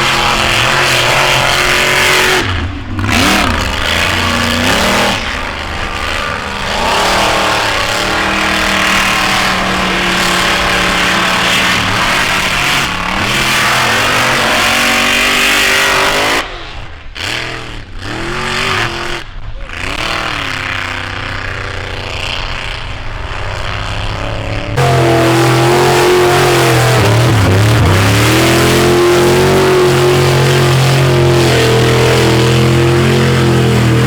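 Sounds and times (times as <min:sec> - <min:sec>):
truck engines revving: 0:00.0 - 0:34.0.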